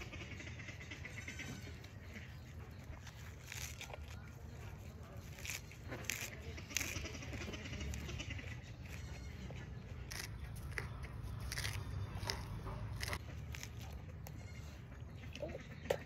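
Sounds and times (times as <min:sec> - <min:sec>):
crunching leafy greens: 0:00.0 - 0:16.0.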